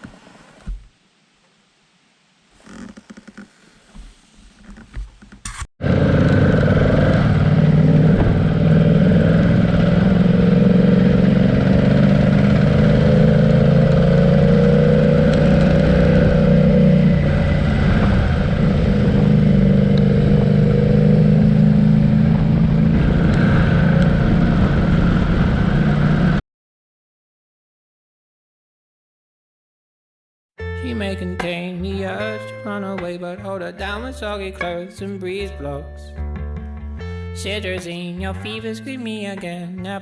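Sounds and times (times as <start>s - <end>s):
motorcycle engine running: 5.5s - 26.4s.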